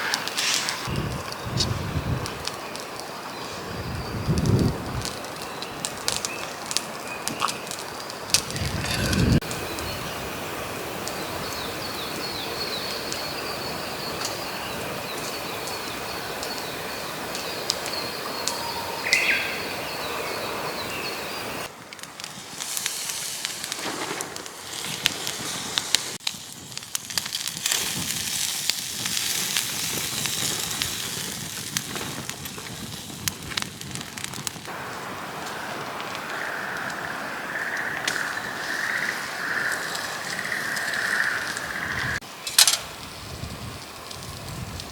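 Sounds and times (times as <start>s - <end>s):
scattered ticks: 0.0s - 10.0s, 21.8s - 42.8s
campfire crackling and popping: 0.0s - 44.9s.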